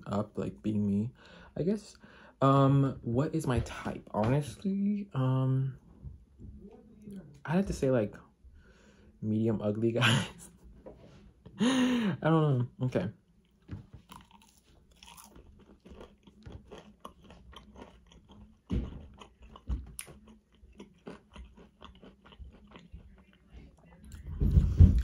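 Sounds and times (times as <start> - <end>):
person chewing crunchy food: 13.4 - 24.2.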